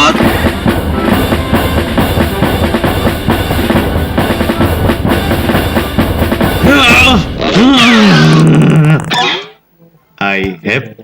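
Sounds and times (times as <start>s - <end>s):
loud music with drum beat: 0.0s - 8.6s.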